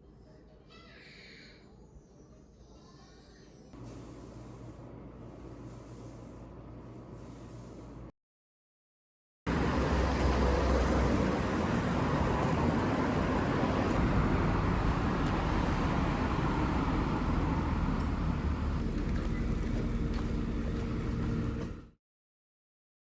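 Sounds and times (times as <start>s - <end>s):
rain hissing: 9.5s - 19.1s
car tyres on wet road: 9.5s - 21.8s.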